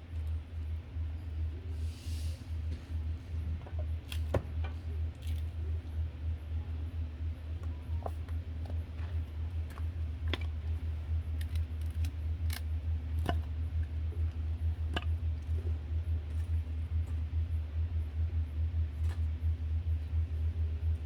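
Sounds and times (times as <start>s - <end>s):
roaster low hum: 0.0s - 21.0s.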